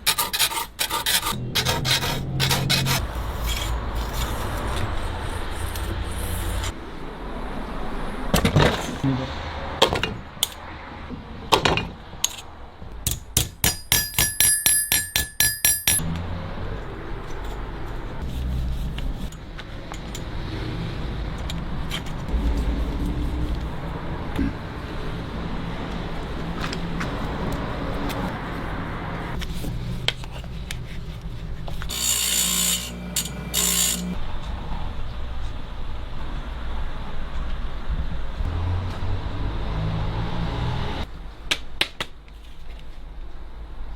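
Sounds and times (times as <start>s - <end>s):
hand tool clicking: 12.2s - 16.0s
hammer striking steel saw blade: 13.1s - 16.0s, 31.9s - 34.2s.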